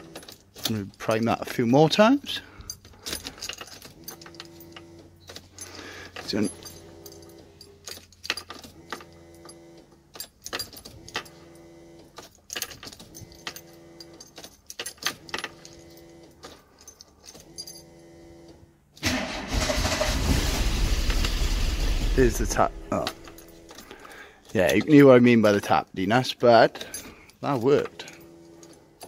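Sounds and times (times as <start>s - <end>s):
keys jingling: 0.0s - 18.0s, 22.8s - 29.0s
electric fuel pump buzzing: 3.8s - 10.2s, 10.8s - 12.4s, 13.0s - 14.4s, 15.1s - 16.6s, 17.4s - 24.3s, 27.9s - 29.0s
car engine cranking and running: 17.4s - 24.2s.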